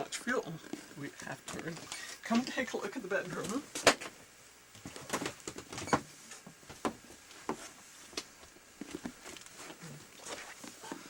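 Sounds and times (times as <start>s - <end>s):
footsteps in a small room: 4.8s - 11.0s.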